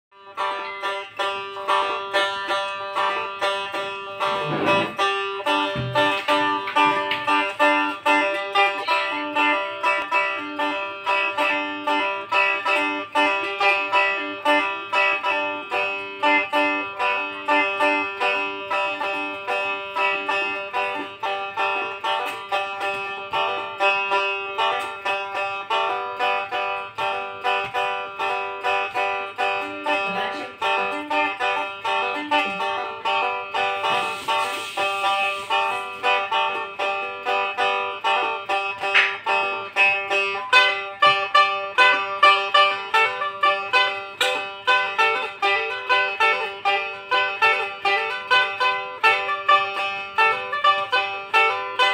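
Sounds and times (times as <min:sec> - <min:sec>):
boat lute plucked notes: 0:00.1 - 0:51.9
lute drone note: 0:04.2 - 0:06.2.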